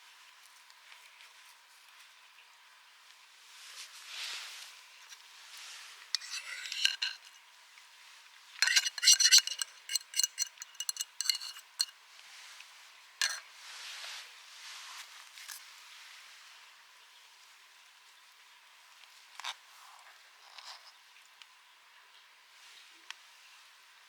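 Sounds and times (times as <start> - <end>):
metal utensil clinking on pan: 6.2 - 7.4, 8.6 - 11.9, 13.2 - 13.4.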